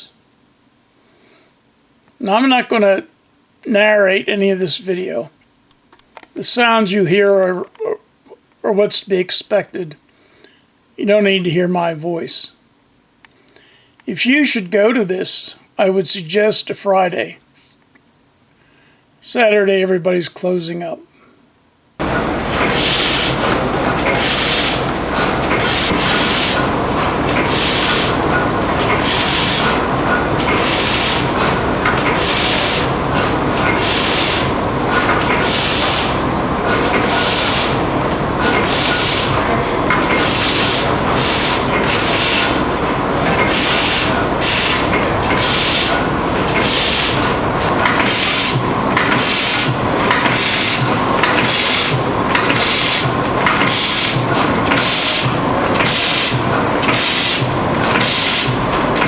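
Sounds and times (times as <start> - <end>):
stationary engines exhaust puffs: 22.0 - 59.0.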